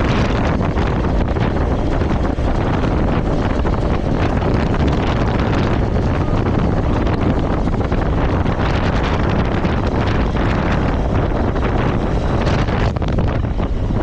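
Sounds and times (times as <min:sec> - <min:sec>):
low riding rumble: 0:00.0 - 0:14.0
wind buffeting microphone: 0:00.0 - 0:14.0.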